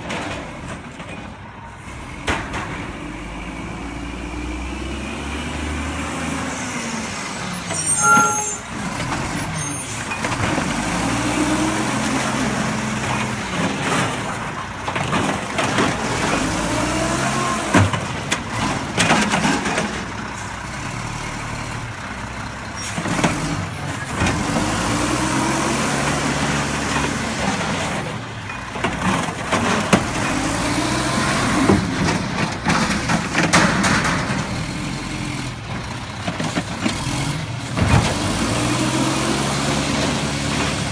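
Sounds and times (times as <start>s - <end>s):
diesel engine revving: 1.9s - 7.6s, 8.7s - 40.9s
short pitched tone: 7.6s - 8.9s.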